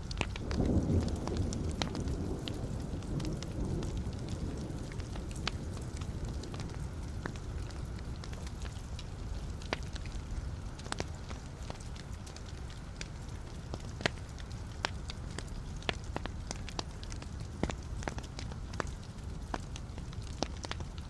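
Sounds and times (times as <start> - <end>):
logs crackling and popping: 0.0 - 21.0.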